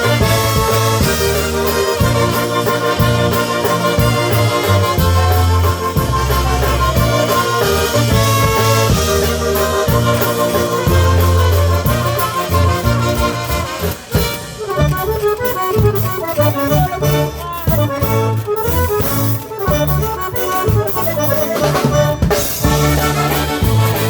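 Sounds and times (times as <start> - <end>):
accordion melody: 0.0 - 24.0
polka band playing: 0.0 - 24.0.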